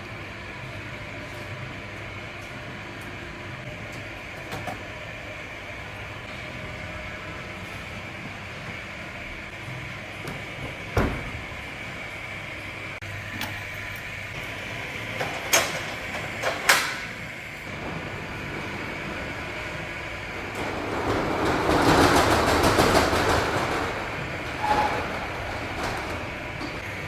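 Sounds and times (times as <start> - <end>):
machine hum: 17.7 - 27.0
sharp knocks: 17.7 - 27.0.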